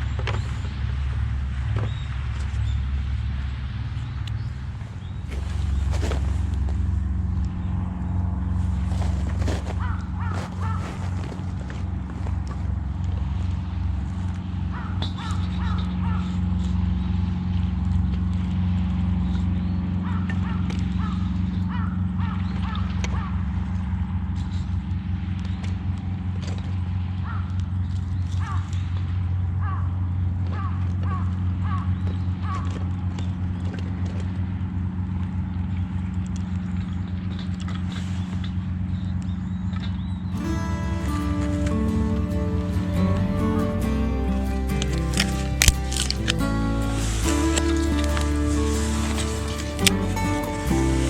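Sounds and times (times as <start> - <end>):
steady low hum: 0.0 - 20.1
engine idling hum: 0.0 - 51.0
crows cawing: 8.9 - 11.4, 14.7 - 16.4.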